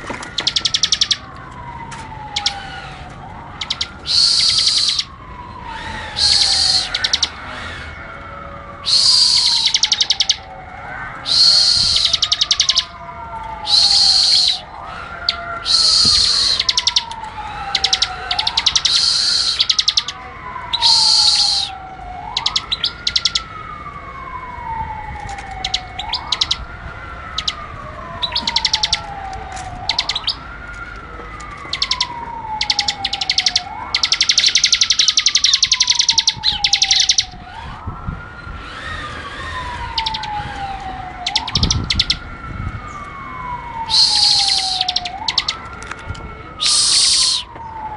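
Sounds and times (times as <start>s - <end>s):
bird high chattering bursts: 3.6s - 5.1s, 5.8s - 7.9s, 11.3s - 12.9s, 17.7s - 20.1s, 43.9s - 45.5s
rising and sliding whistle: 3.7s - 8.0s, 8.8s - 10.5s, 11.2s - 12.9s, 13.6s - 14.7s, 15.6s - 20.1s, 20.7s - 21.8s, 38.6s - 42.2s, 43.8s - 45.5s, 46.6s - 47.6s.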